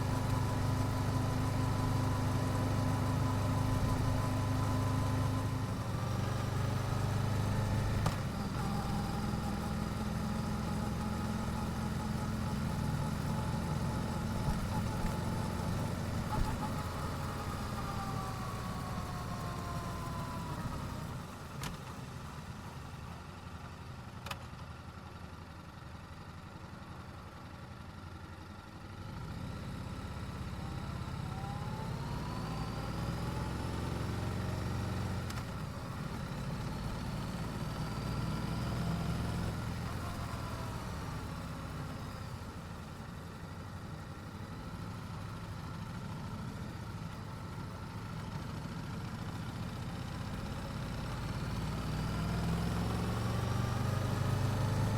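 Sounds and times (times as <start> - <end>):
motorcycle engine running: 0.0 - 21.5.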